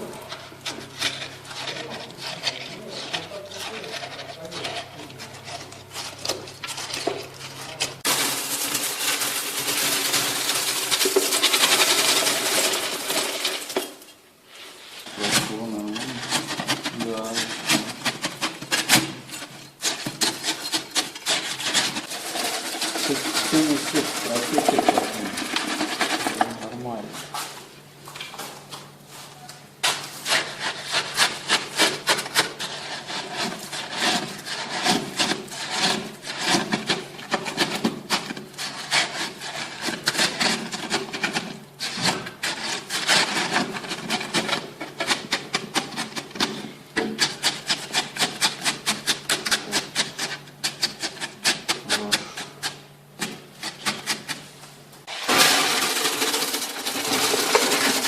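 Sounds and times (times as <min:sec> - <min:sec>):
steady scraping: 0:00.0 - 0:27.6, 0:53.6 - 0:58.0
hand tool rubbing and sawing: 0:14.9 - 0:27.5.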